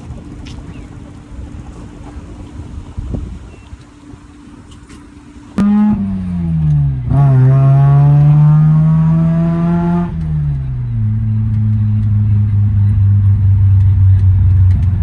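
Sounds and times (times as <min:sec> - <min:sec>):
rotary engine revving: 0:05.6 - 0:15.0.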